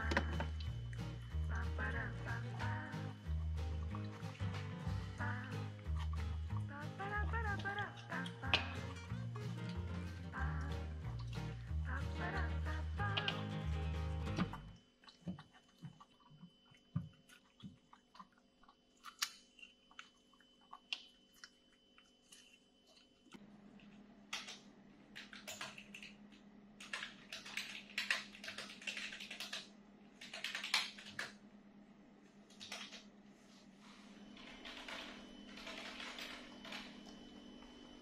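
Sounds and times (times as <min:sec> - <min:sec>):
steady low hum: 0:00.0 - 0:38.0
keyboard typing: 0:26.8 - 0:31.4, 0:32.5 - 0:33.0, 0:34.4 - 0:37.2.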